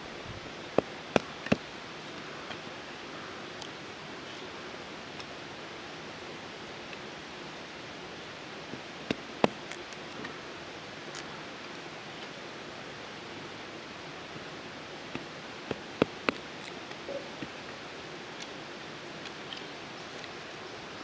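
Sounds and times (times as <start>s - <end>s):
steady outdoor hiss: 0.0s - 21.0s
knife clicking on dry wood: 0.7s - 1.7s, 9.1s - 10.3s, 15.2s - 17.6s.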